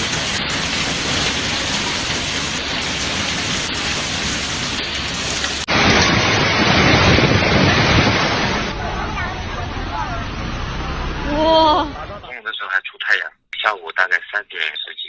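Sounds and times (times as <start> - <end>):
heavy rain and hail: 0.0 - 10.8
low rumble: 0.3 - 12.3.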